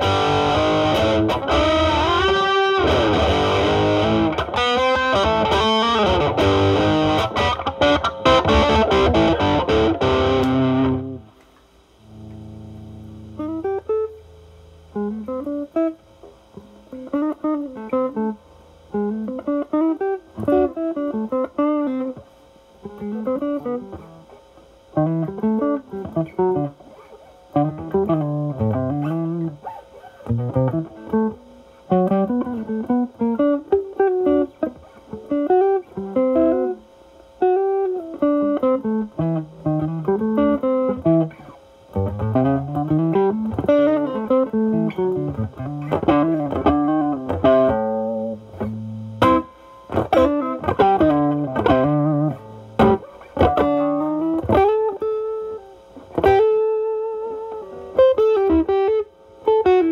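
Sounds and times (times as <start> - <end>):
overdriven electric guitar: 0.0 - 59.9.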